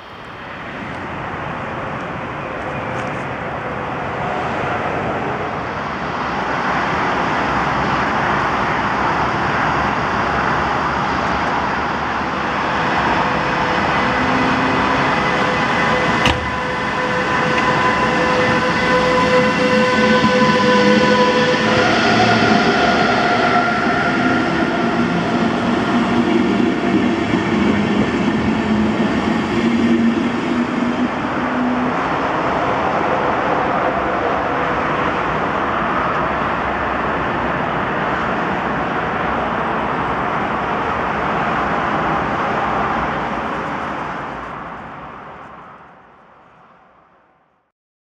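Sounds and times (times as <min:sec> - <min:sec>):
train wheels rushing on rail: 0:00.0 - 0:46.0
whining tones: 0:13.8 - 0:22.8.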